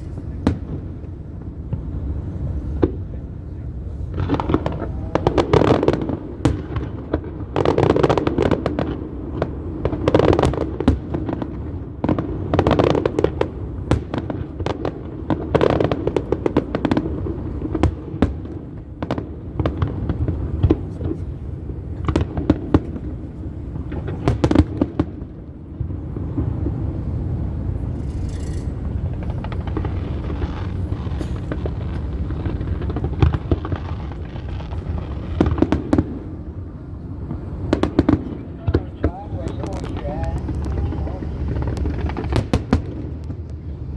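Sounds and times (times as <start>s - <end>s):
low rumbling: 0.0s - 7.5s, 25.6s - 43.9s
fireworks bangs and crackles: 0.0s - 43.9s.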